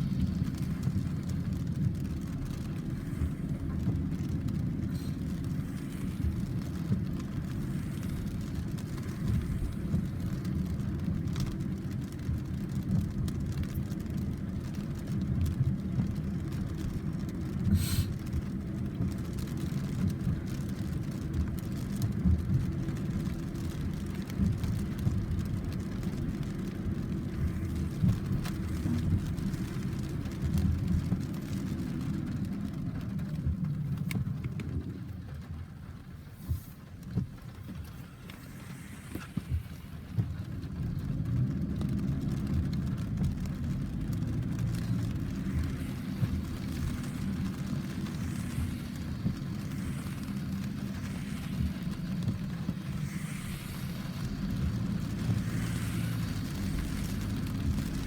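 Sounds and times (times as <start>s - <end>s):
thunder rumbling: 36.4s - 58.0s.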